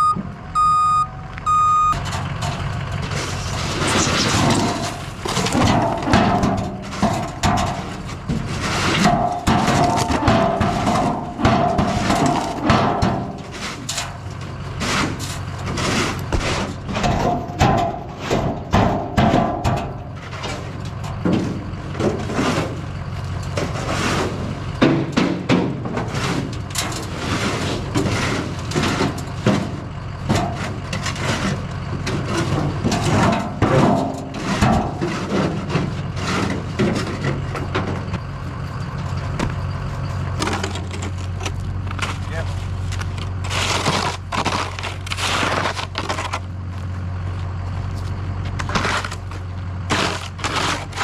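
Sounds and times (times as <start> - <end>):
truck engine running: 0.0 - 51.0
scraping and knocking: 2.0 - 38.2.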